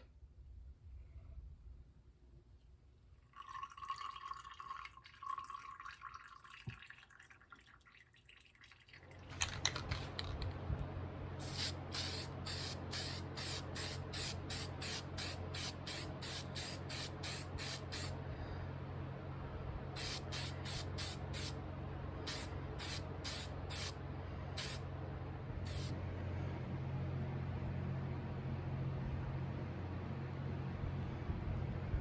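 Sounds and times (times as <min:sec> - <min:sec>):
motor hum: 0:09.0 - 0:32.0
short hissing strokes: 0:11.4 - 0:18.2, 0:20.0 - 0:21.6, 0:22.3 - 0:24.0, 0:24.6 - 0:24.8, 0:25.7 - 0:25.9.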